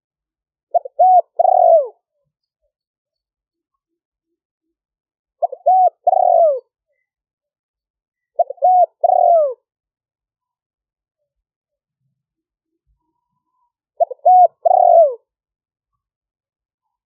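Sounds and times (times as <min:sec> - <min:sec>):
dove cooing: 0:00.7 - 0:02.1, 0:05.4 - 0:07.1, 0:08.3 - 0:09.7, 0:14.0 - 0:15.3.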